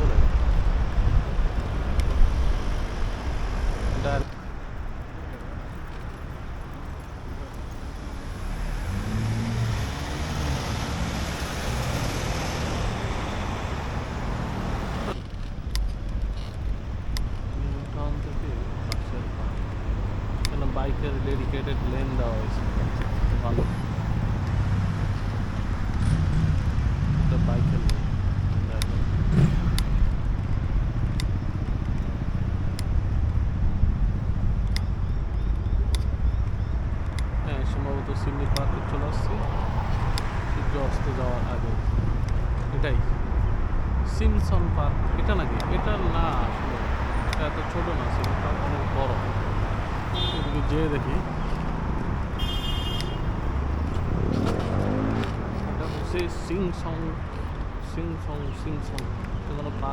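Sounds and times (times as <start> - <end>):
wind on microphone: 0.0 - 5.0
vehicle engine hum and road noise: 0.0 - 59.9
sharp ticks: 27.8 - 37.4.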